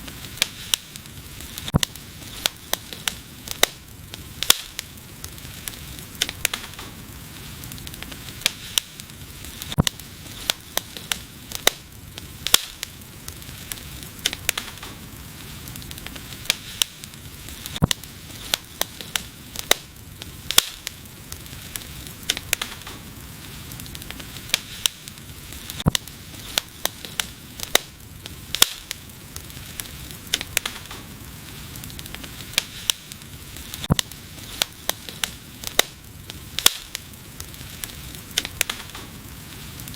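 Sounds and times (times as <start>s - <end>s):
fire hissing: 0.0s - 39.9s
wood fire crackling and popping: 0.0s - 39.9s.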